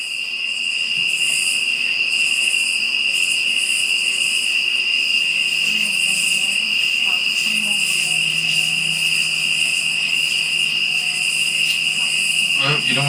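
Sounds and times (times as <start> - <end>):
crickets chirping: 0.0 - 13.0
soft pulsing insect trill: 0.0 - 13.0.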